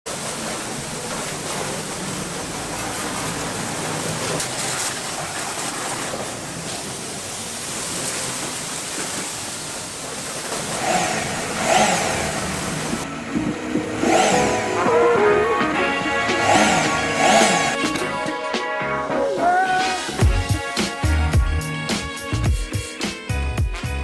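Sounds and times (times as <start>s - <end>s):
road traffic passing: 0.2s - 9.2s, 10.0s - 18.3s.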